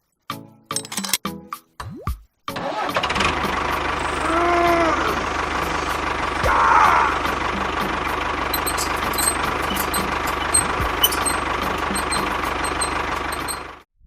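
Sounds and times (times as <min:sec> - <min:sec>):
small engine running: 0:02.6 - 0:13.8.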